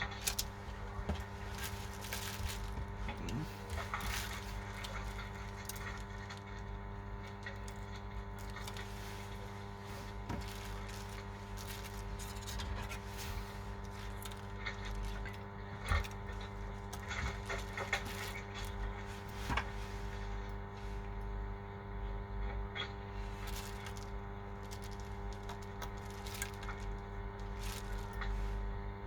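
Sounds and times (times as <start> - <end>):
electrical hum: 0.0 - 29.0.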